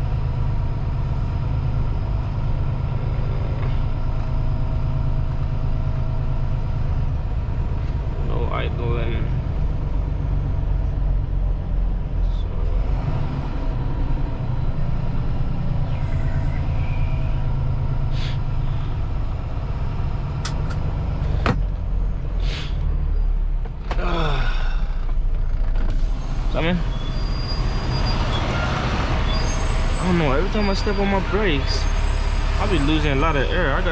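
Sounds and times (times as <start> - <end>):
truck engine and road rumble: 0.0 - 33.9
air brake hisses: 22.4 - 22.8.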